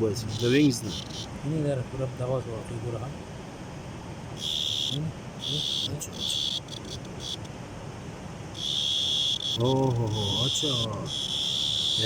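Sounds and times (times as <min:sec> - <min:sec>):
cricket chirping: 0:00.0 - 0:01.5, 0:04.3 - 0:07.6, 0:08.5 - 0:12.0.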